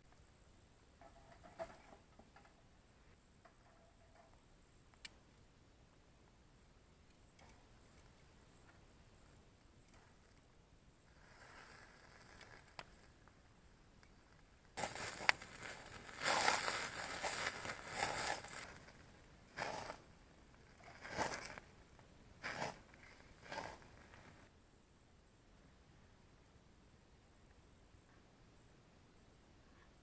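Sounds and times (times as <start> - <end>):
rustling and handling noises: 14.0 - 24.5.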